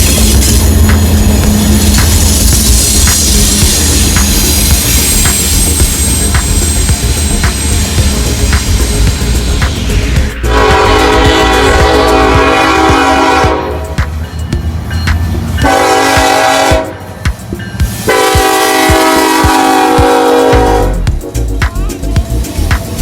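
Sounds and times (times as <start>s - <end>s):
low rumble of passing train: 0.0s - 23.0s
locomotive air horn blasts: 10.4s - 14.0s, 15.6s - 17.0s, 18.1s - 21.0s.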